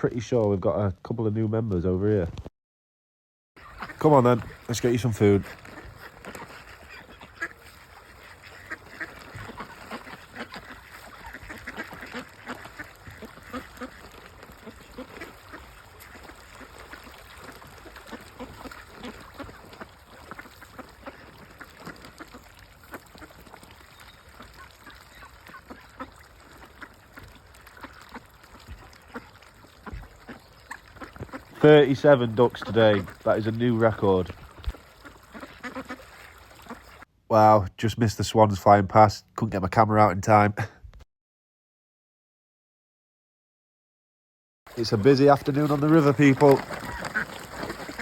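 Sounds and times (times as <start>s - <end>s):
flock of ducks quacking: 3.6s - 37.1s, 44.7s - 48.0s.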